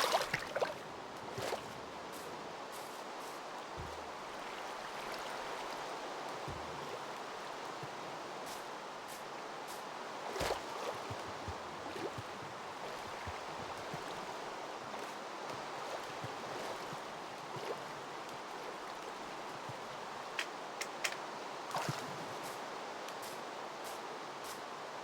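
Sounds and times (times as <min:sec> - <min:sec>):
floodwater rushing: 0:00.0 - 0:01.8, 0:03.8 - 0:07.0.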